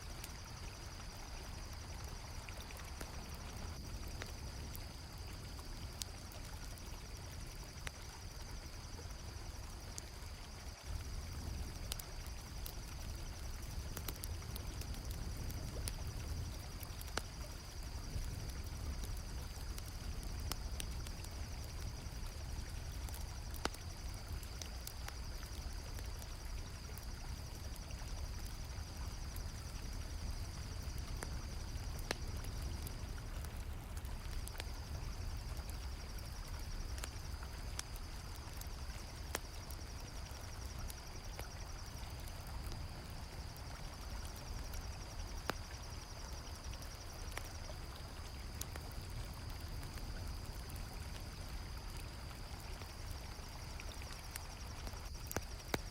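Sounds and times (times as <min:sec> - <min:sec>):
campfire crackling and popping: 0:00.0 - 0:55.9
crickets trilling: 0:00.0 - 0:55.9.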